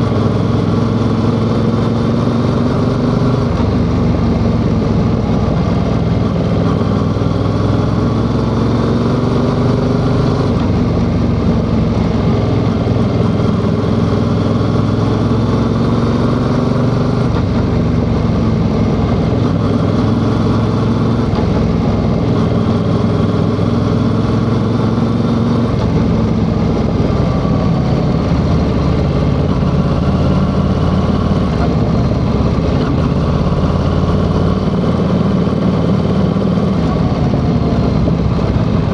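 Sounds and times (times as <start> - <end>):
motorcycle engine running: 0.0 - 38.9
steady rushing noise: 16.7 - 38.9.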